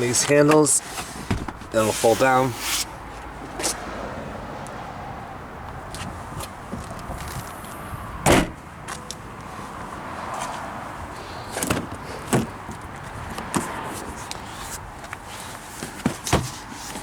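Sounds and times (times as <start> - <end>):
seat knocks: 1.2 - 1.8
seatback heavy thud: 1.2 - 2.9, 8.2 - 8.6.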